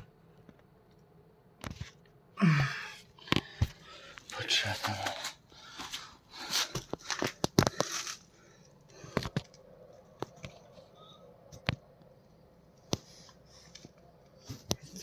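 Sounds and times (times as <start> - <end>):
scraping and rustling of parts: 4.9 - 8.4.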